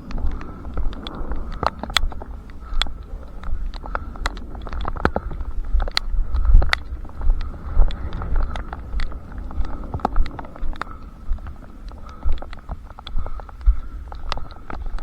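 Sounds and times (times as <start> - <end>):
runner's footsteps: 0.0 - 15.0
sharp ticks: 0.0 - 15.0
wind rumbling on microphone: 0.0 - 15.0.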